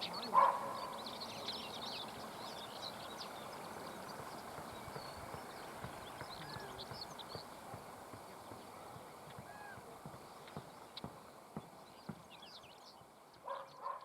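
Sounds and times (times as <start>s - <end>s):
bird song chirps and twitters: 0.0s - 7.5s, 10.3s - 14.0s
steady background hiss: 0.0s - 13.5s.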